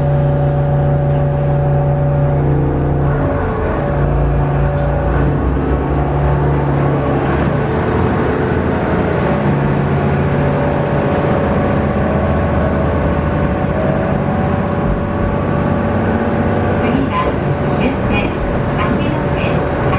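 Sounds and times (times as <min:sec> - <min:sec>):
diesel railcar engine running: 0:00.0 - 0:19.9
steady multi-pitched hum: 0:13.4 - 0:19.9.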